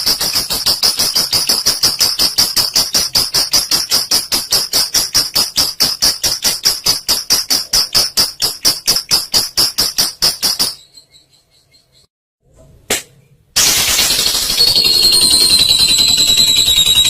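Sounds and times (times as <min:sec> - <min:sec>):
lovebird shrill notes: 0:14.0 - 0:17.0.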